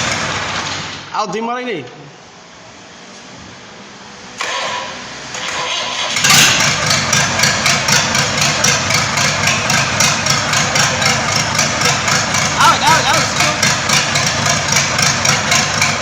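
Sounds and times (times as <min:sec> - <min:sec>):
starter motor cranking: 0:04.4 - 0:16.0
engine running with pulsing beat: 0:06.2 - 0:16.0.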